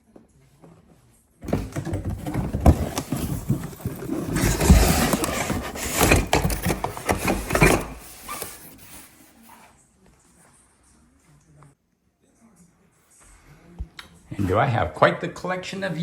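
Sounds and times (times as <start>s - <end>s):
sharp knocks and bumps: 1.4s - 8.1s
objects rustling and clattering: 1.4s - 9.8s.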